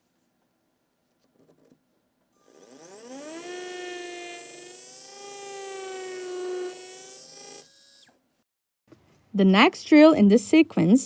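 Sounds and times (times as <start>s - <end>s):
dental drill whine: 2.4s - 8.1s.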